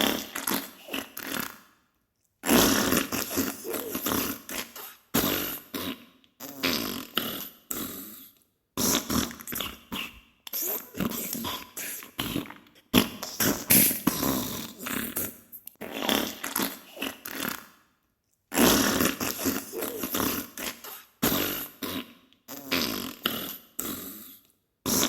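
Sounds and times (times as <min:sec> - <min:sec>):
fart bursts: 0:00.0 - 0:01.6, 0:02.4 - 0:08.0, 0:08.8 - 0:17.7, 0:18.5 - 0:24.3.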